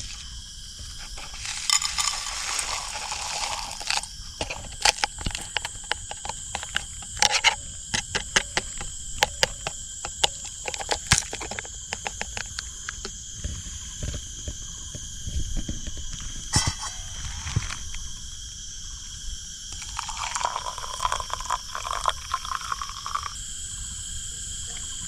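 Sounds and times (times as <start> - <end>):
cicadas droning: 0.0 - 25.0
sharp clicks and taps: 3.8 - 13.1.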